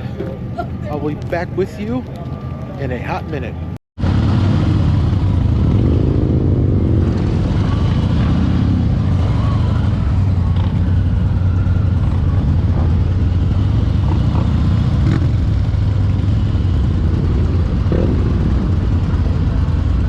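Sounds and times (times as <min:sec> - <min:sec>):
motorcycle engine running: 0:04.0 - 0:20.0.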